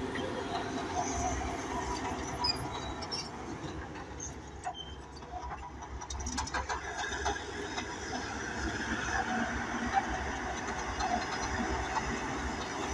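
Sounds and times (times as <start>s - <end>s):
bulldozer diesel engine rumbling: 0.0s - 12.9s
clanks and clicks: 3.1s - 8.0s.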